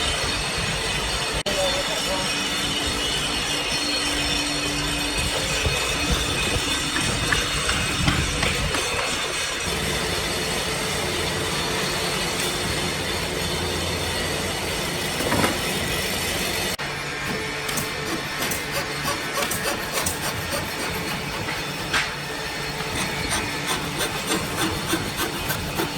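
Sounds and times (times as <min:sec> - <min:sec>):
machine humming: 0:00.1 - 0:25.9.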